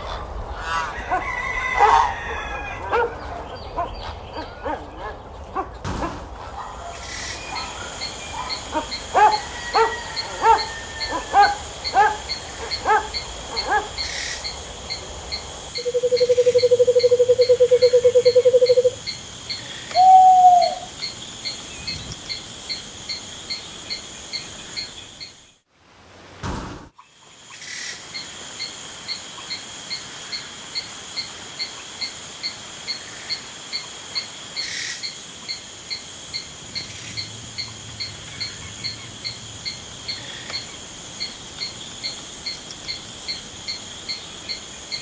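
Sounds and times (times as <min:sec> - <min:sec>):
birds calling: 0:07.1 - 0:25.4
ticking insect chorus: 0:07.1 - 0:25.4, 0:27.4 - 0:45.0
low rapid bird trill: 0:07.4 - 0:25.4.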